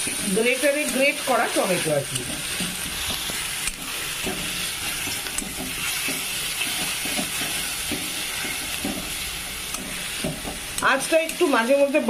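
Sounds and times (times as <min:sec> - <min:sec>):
paste sizzling in hot oil: 0:00.0 - 0:12.0
metal spatula scraping pan: 0:01.6 - 0:10.6.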